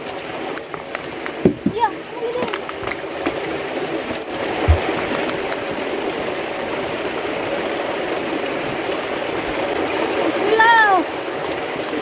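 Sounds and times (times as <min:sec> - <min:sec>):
running water rushing: 0:00.0 - 0:12.0
short low thump: 0:04.6 - 0:05.3.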